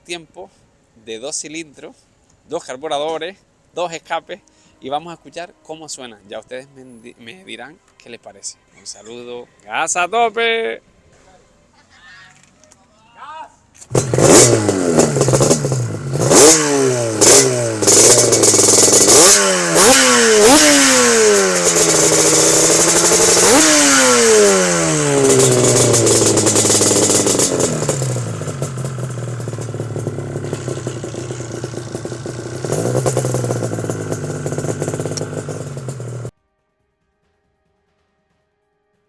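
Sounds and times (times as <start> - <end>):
motorcycle engine idling: 13.9 - 36.3
motorcycle engine revving: 13.9 - 36.3.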